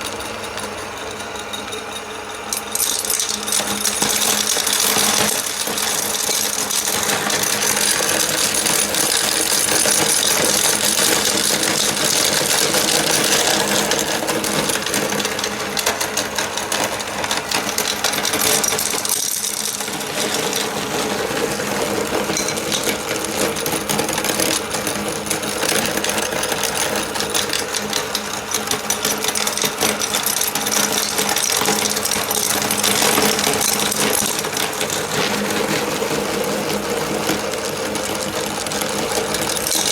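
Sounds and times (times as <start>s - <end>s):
meat grinder motor running: 0.0s - 39.9s
candy shells crackling: 2.6s - 14.9s.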